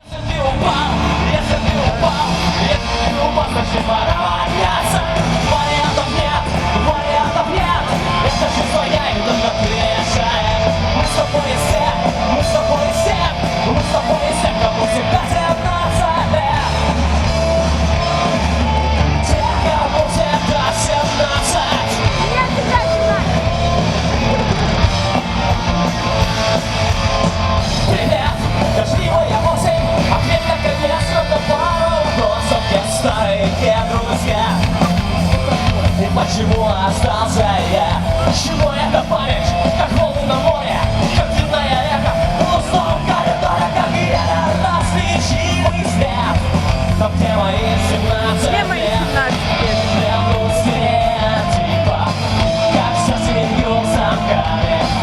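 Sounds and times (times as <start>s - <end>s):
electric guitar: 0.0s - 55.0s
live heavy rock music: 0.0s - 55.0s
person yelling: 22.2s - 23.4s.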